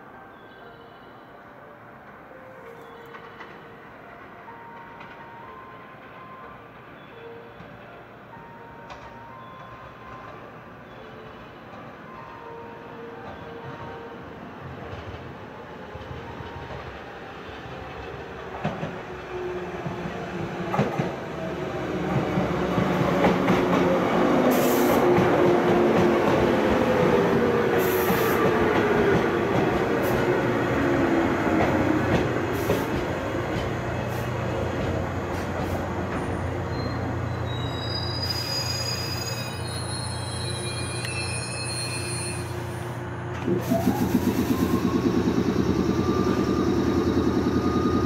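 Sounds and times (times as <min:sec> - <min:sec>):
electric train passing: 0:00.0 - 0:48.0
train wheel squeal: 0:35.4 - 0:43.0, 0:43.6 - 0:48.0.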